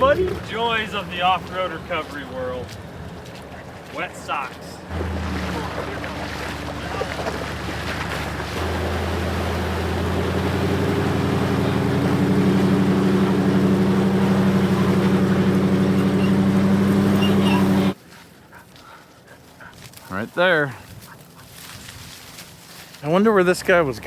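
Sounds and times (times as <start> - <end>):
truck engine under load: 4.8 - 18.0.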